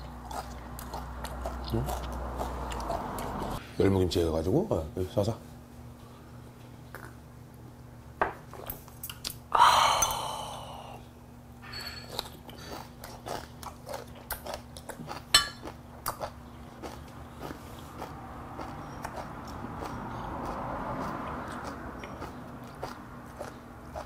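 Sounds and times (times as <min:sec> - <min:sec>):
man chewing and crunching food: 0:00.0 - 0:03.6, 0:06.5 - 0:07.7, 0:11.7 - 0:24.0.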